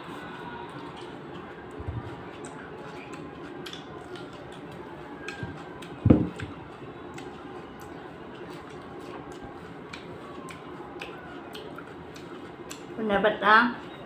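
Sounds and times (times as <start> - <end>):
wet chewing: 0.1 - 13.1
mouth clicks and smacks: 0.8 - 13.0.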